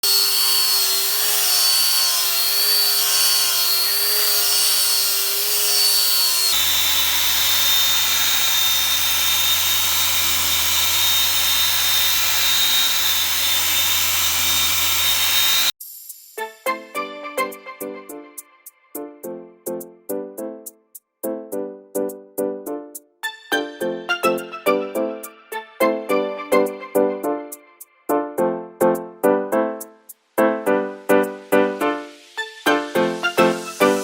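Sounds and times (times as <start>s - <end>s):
metalworking hiss with high whine: 14.5s - 16.8s.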